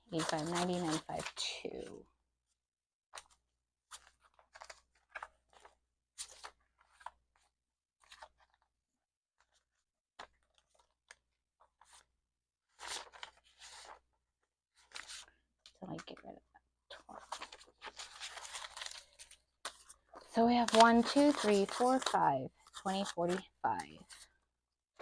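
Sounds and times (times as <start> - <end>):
paper banknotes rustling: 0.1 - 1.4, 12.7 - 14.0, 17.0 - 24.3.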